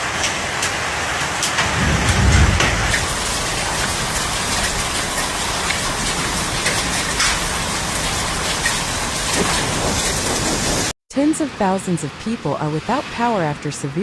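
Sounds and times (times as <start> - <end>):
hailstones hitting hard surfaces: 0.0 - 10.6
heavy rain and hail: 0.0 - 10.9
low rumble: 1.6 - 5.0.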